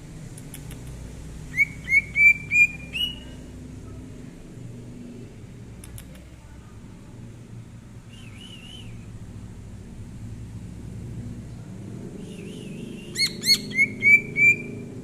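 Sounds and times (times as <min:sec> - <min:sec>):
bird whistling rising notes: 0:01.6 - 0:03.2, 0:12.3 - 0:14.8.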